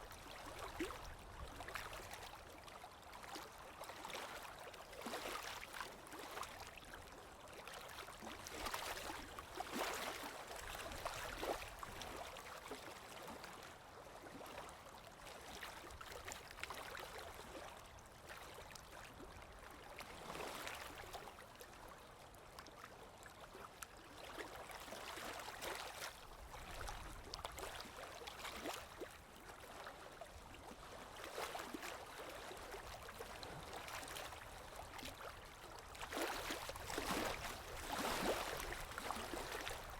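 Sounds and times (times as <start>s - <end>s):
water splashing: 36.1s - 39.9s.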